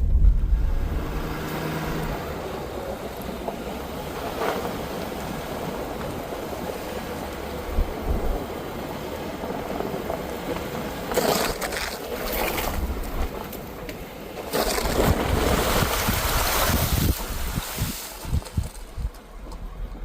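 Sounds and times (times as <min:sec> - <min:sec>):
wind rush: 0:00.0 - 0:02.3, 0:15.0 - 0:19.1
pickup truck driving: 0:00.0 - 0:20.0
road and tyre noise: 0:00.0 - 0:20.0.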